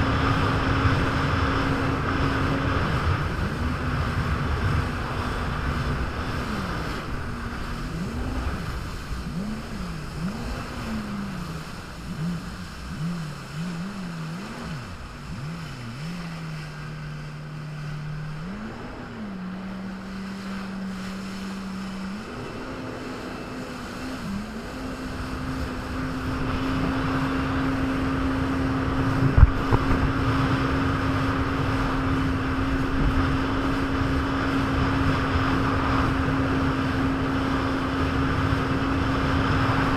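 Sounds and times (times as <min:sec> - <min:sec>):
jet ski engine revving: 0:00.0 - 0:39.9
water rushing: 0:00.0 - 0:39.9
wind on microphone: 0:00.0 - 0:39.9.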